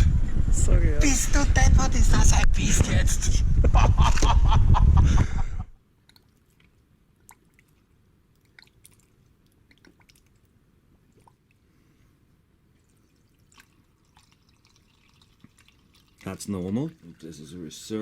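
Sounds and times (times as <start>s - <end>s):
wind buffeting microphone: 0.0s - 5.8s.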